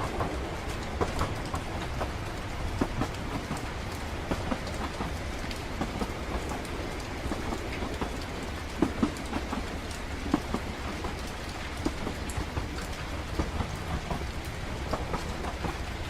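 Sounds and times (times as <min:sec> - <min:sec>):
rain drops tapping: 0:00.0 - 0:16.0
train rumble: 0:00.0 - 0:16.0.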